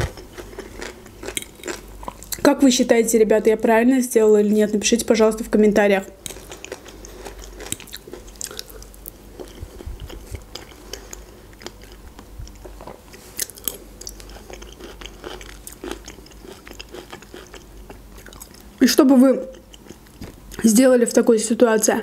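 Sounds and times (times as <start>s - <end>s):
chewing soft food: 0.0s - 2.4s, 6.2s - 18.8s, 19.4s - 20.6s.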